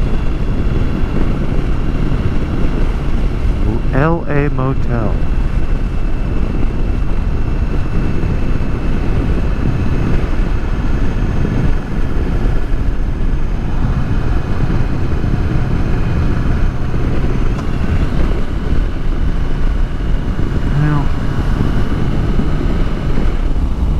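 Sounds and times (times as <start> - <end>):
wind and road noise: 0.0 - 23.9
motorcycle engine running: 4.9 - 23.9.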